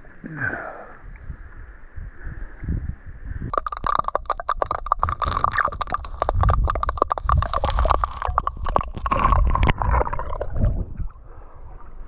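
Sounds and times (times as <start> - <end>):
rapid irregular clicks: 3.5 - 10.5
water sloshing and splashing: 3.5 - 12.0.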